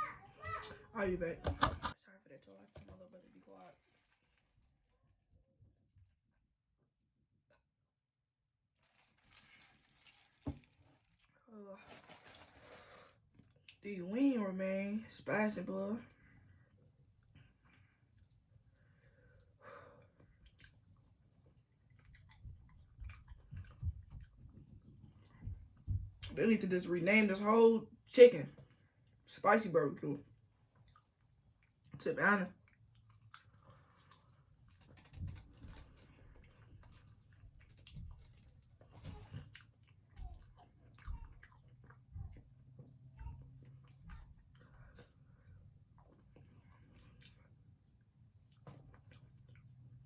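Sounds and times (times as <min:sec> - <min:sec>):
low chewing thuds: 0:20.2 - 0:26.4, 0:32.6 - 0:50.0
wet chewing clicks: 0:20.2 - 0:26.4, 0:30.6 - 0:32.0, 0:32.6 - 0:50.0.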